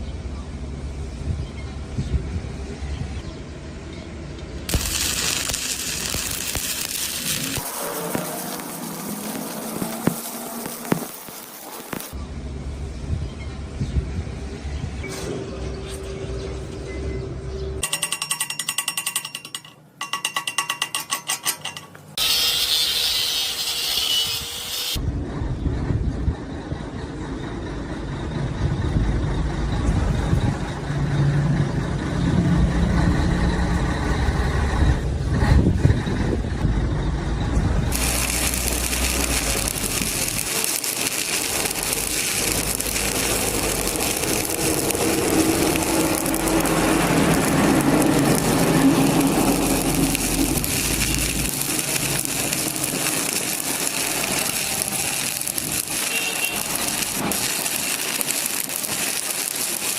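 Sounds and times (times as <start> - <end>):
welding arc crackling: 4.7 - 12.2, 22.1 - 25.0, 37.9 - 59.9
low machine rumble: 25.0 - 59.3.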